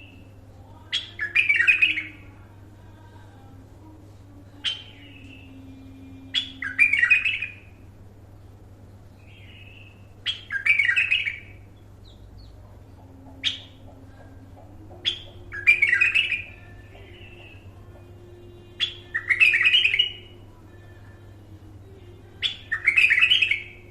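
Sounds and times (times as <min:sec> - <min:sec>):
bird warbling song: 0:00.0 - 0:02.4, 0:04.5 - 0:07.7, 0:09.1 - 0:20.6, 0:22.3 - 0:23.9.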